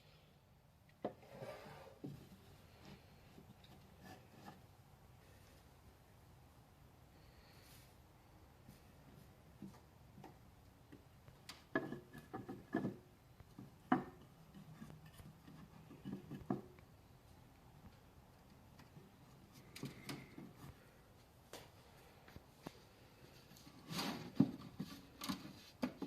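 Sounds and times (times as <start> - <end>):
wooden hive parts knocking: 11.7 - 14.7.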